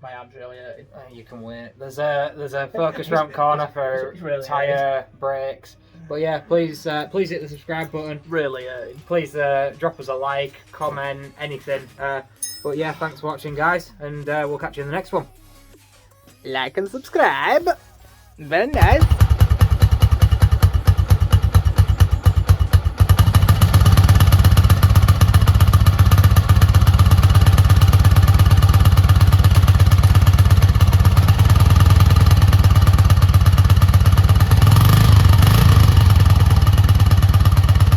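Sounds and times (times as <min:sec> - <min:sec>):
motorbike engine pulsing: 0:18.8 - 0:37.9.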